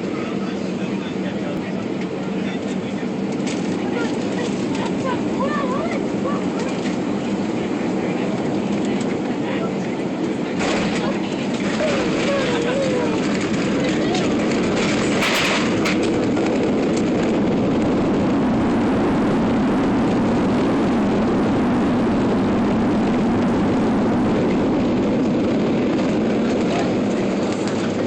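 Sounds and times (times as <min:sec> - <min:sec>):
jet engines and rushing air: 0:00.0 - 0:28.0
brief rattle: 0:14.8 - 0:16.2.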